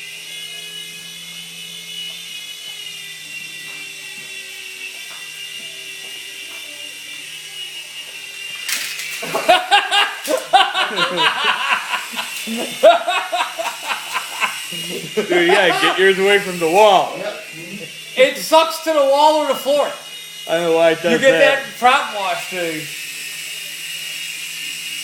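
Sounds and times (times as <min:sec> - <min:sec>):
toy helicopters whining: 0:00.0 - 0:25.0
loud laughter: 0:09.2 - 0:16.2
voices: 0:09.2 - 0:22.9.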